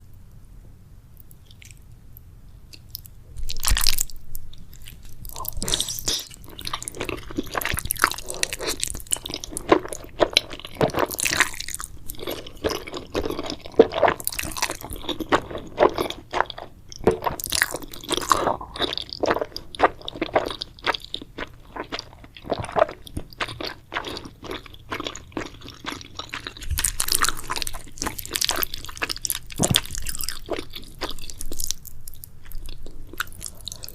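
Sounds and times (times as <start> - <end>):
person chewing crunchy food: 2.7 - 33.9.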